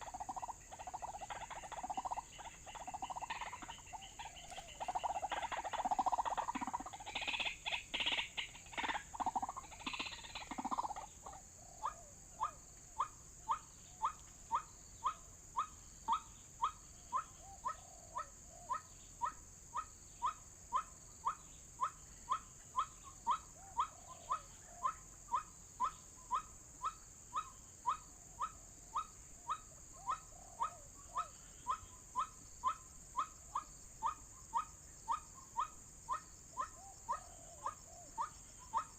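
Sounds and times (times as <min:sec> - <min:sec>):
waterhen calling: 0:00.0 - 0:12.6.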